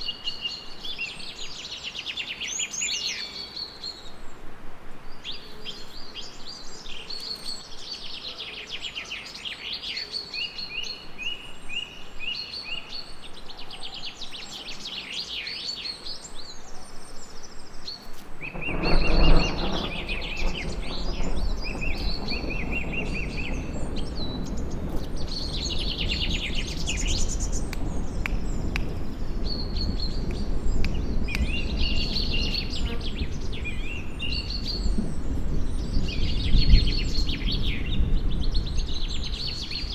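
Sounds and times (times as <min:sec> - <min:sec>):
birds singing and chirping: 0:05.3 - 0:39.9
thunder rumbling: 0:18.4 - 0:39.9.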